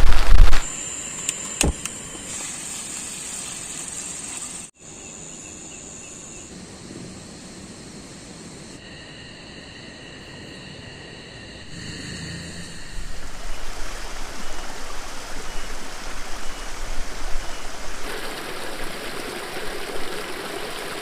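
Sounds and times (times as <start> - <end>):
insects trilling: 0.6 - 21.0
loud rain: 12.9 - 21.0.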